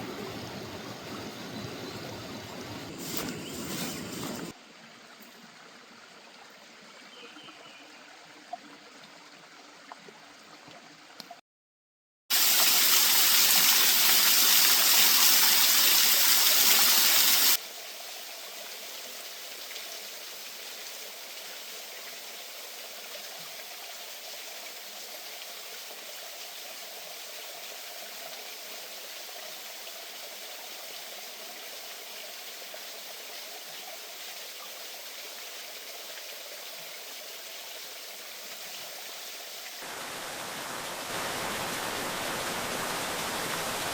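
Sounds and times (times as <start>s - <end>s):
stream water rushing: 39.7s - 43.9s.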